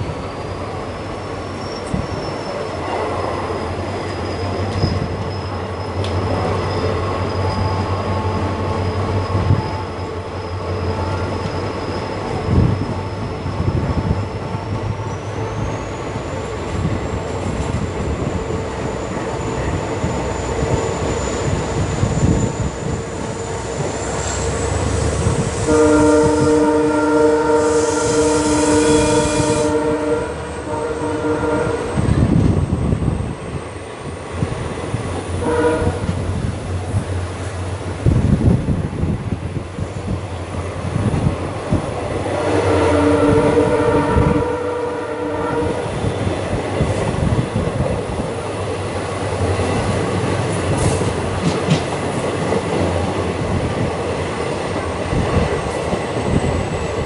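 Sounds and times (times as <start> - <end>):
train rumbling on track: 0.0 - 57.0
train horn blast: 24.2 - 32.3, 35.4 - 36.2, 42.2 - 46.1.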